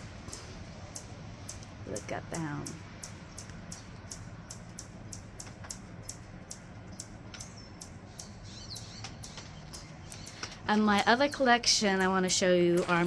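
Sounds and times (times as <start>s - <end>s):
low background hum: 0.0s - 13.0s
bird chirping: 2.6s - 11.9s.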